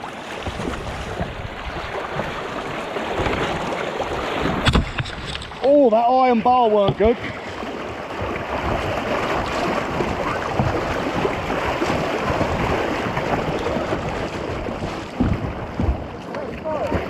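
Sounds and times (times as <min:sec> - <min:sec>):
rushing water: 0:00.0 - 0:17.0
short knocks: 0:14.8 - 0:17.0.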